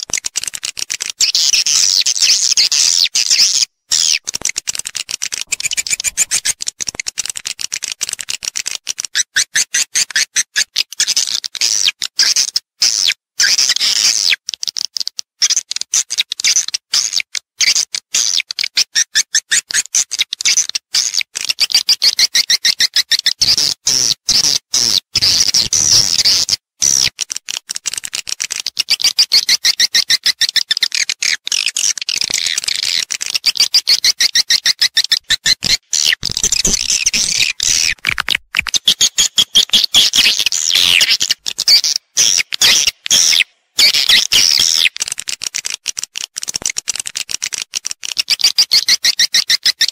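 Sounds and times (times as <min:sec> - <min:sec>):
swiftlets twittering: 0:05.5 - 0:06.6.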